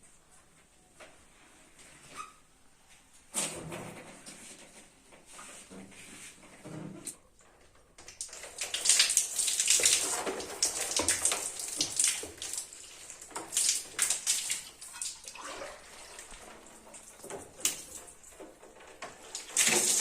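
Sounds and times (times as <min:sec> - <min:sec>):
water splashing and running: 0:08.0 - 0:20.0.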